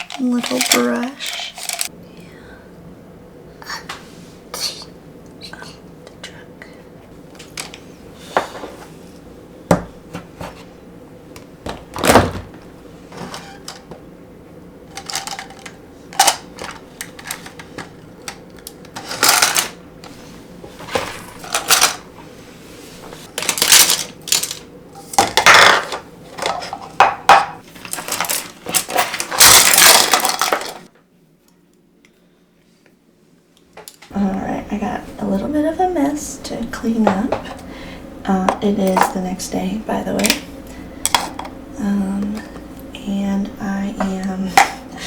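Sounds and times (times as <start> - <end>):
brushes clinking against containers: 0.0 - 1.9.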